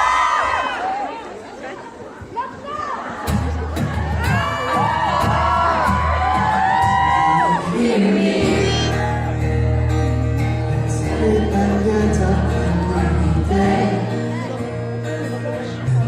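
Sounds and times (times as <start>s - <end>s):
live band playing: 3.3s - 16.0s
fans screaming: 3.8s - 9.5s.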